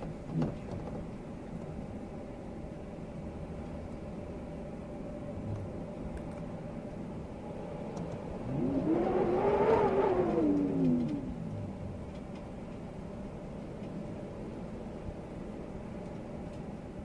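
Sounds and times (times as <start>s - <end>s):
vehicle engine revving: 5.4s - 5.9s, 8.0s - 12.4s
wind rushing: 7.4s - 12.0s.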